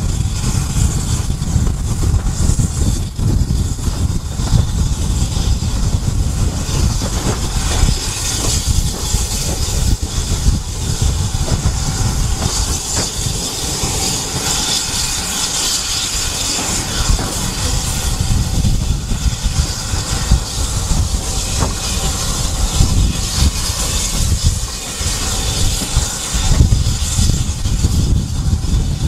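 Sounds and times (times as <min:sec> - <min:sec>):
high hiss: 0:00.0 - 0:29.0
train low rumble: 0:00.0 - 0:29.0.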